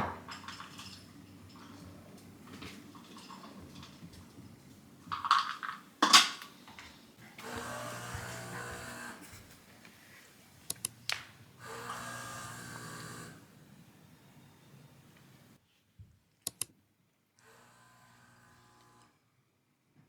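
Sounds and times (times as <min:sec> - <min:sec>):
small electric motor humming: 0:07.4 - 0:09.3, 0:11.6 - 0:13.5, 0:17.4 - 0:19.2
sharp clicks: 0:10.7 - 0:11.3, 0:16.4 - 0:16.7.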